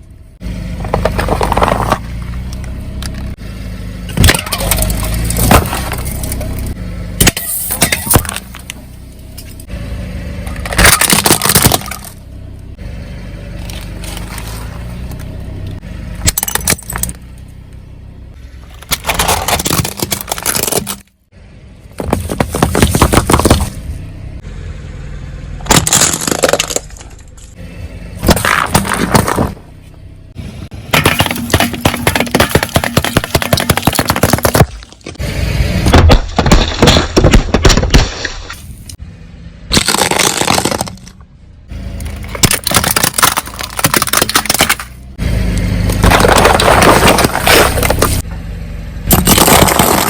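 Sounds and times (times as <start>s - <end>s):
car engine running: 0.0s - 50.0s
tyres crushing brittle objects: 0.8s - 2.7s, 4.1s - 8.8s, 10.5s - 12.2s, 13.6s - 15.2s, 18.6s - 21.2s, 22.0s - 23.8s, 25.7s - 27.5s, 28.2s - 29.6s, 30.7s - 35.2s, 35.8s - 39.0s, 39.7s - 41.2s, 41.9s - 45.1s, 45.8s - 48.2s, 49.1s - 50.0s.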